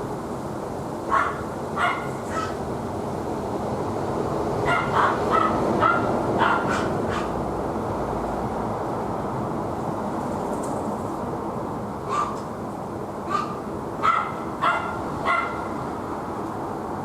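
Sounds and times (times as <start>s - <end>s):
dog barking: 1.1s - 2.6s, 4.6s - 7.4s, 12.1s - 12.4s, 13.3s - 15.7s.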